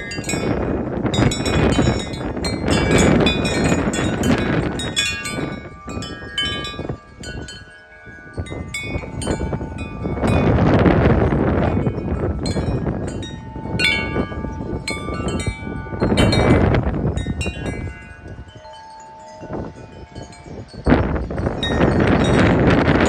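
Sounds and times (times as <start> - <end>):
gusty wind buffeting microphone: 0.0 - 23.0
wind chimes ringing: 0.0 - 23.0.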